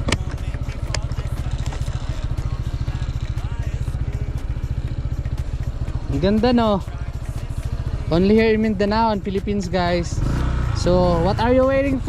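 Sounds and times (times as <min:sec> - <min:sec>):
sharp clicks: 0:00.0 - 0:01.9
motorcycle engine running: 0:00.0 - 0:12.0.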